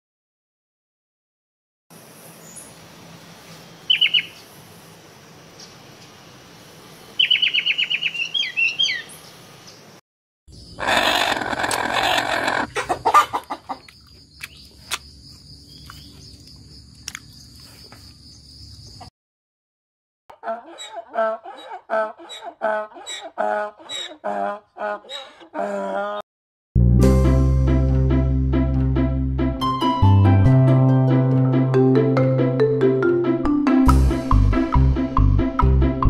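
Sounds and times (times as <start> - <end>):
bird calling sharp notes: 3.9 - 4.4
hens clucking: 10.8 - 14.0, 20.3 - 26.2.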